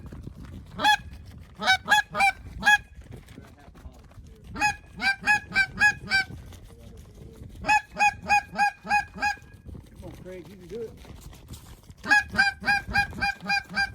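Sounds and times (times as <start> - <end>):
goose call honks: 0.8 - 1.0, 1.6 - 2.8, 4.6 - 6.3, 7.6 - 9.4, 12.0 - 13.9.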